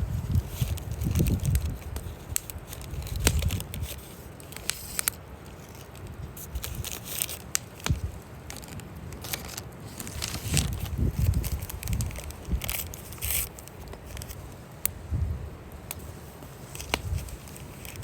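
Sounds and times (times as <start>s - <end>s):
wind on microphone: 0.0s - 4.0s, 7.8s - 8.2s, 9.8s - 14.2s, 14.9s - 15.7s, 16.9s - 18.0s
wood fire crackling: 0.0s - 18.0s.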